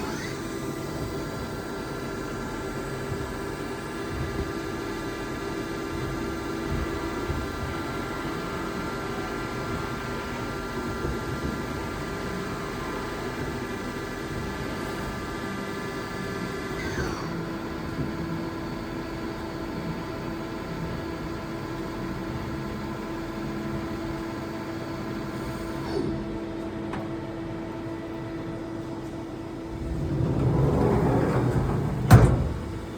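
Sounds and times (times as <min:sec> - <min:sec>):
machine hum: 0:29.3 - 0:32.9.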